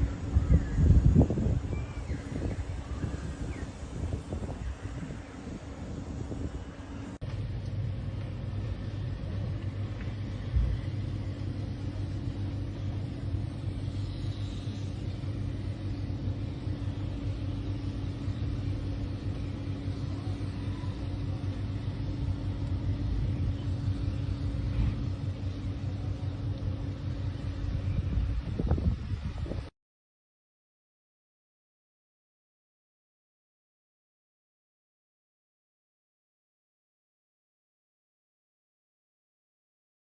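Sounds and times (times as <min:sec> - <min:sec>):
engine running: 0:00.0 - 0:29.7.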